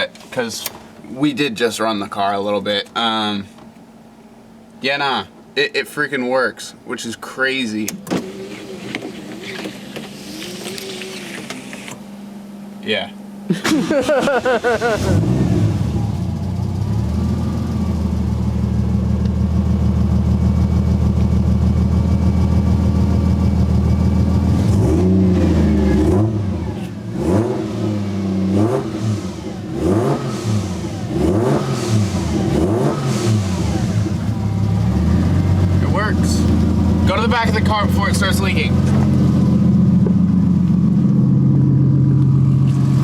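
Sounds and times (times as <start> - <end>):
car engine idling and revving: 7.8 - 13.5, 14.1 - 43.0.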